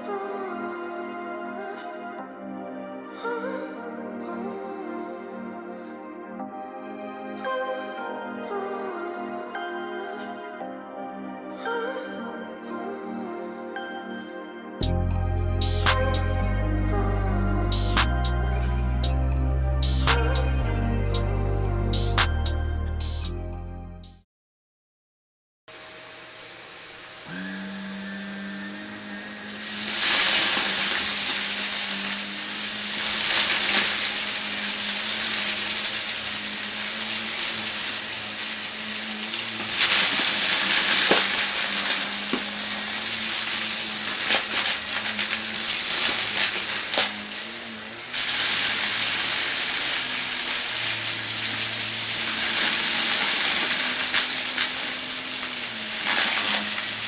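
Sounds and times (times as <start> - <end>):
vacuum cleaner motor: 25.7 - 45.3
vacuum sucking dry debris: 25.7 - 57.0.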